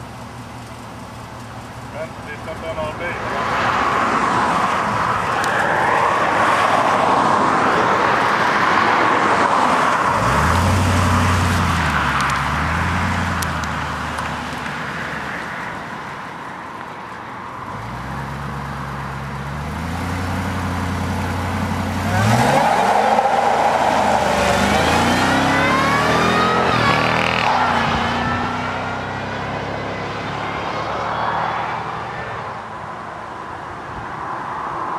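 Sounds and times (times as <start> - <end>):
rushing tyre noise: 0.0 - 34.9
engine accelerating at full throttle: 19.5 - 31.9.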